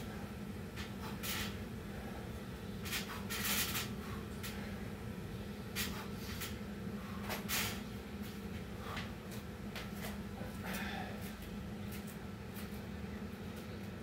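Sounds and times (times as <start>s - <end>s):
steady low hum: 0.0s - 14.0s
person breathing hard: 10.4s - 11.4s.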